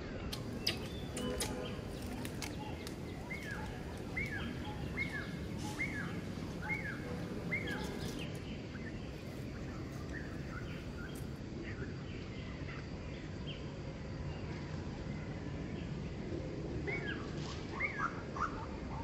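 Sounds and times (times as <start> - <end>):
outdoor background noise: 0.0 - 19.0
bird repeating short call: 0.4 - 8.2.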